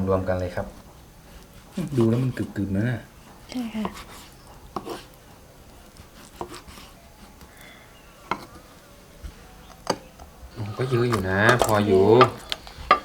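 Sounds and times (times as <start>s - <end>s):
utensils knocking on cutting board: 3.8s - 5.0s, 11.1s - 13.0s.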